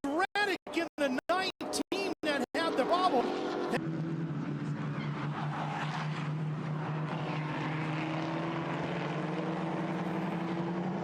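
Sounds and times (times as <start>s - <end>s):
steady engine drone: 2.6s - 11.0s.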